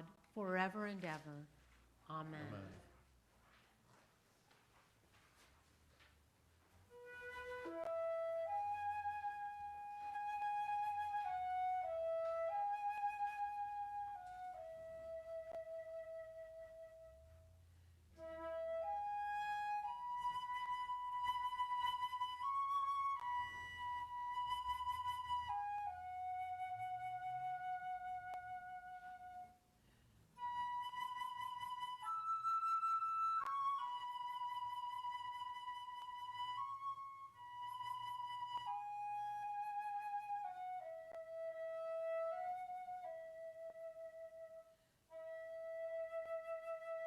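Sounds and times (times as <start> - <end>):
solo flute melody: 6.6 - 47.0.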